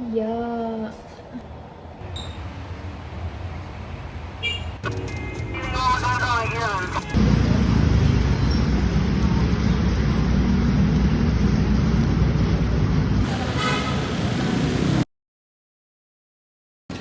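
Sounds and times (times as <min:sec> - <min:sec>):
vehicle rumble from inside: 0:04.8 - 0:15.0.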